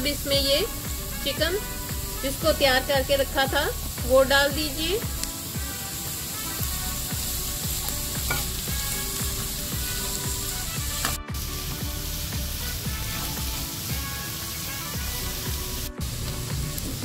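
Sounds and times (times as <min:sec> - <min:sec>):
food sizzling in a pan: 0:00.0 - 0:17.0
spatula stirring in a pan: 0:05.1 - 0:11.2.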